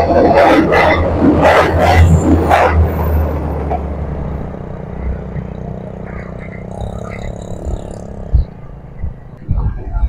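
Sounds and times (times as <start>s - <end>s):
train hum and wheel rumble: 0.0s - 10.0s.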